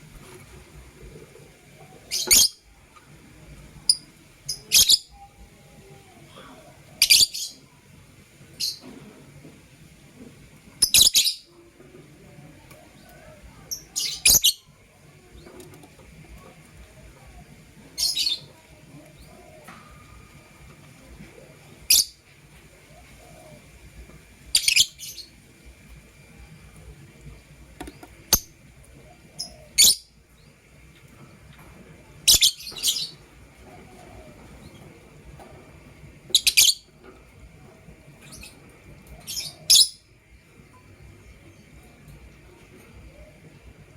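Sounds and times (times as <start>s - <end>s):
lovebirds chirping: 24.5s - 25.4s, 36.3s - 36.9s, 38.2s - 42.0s.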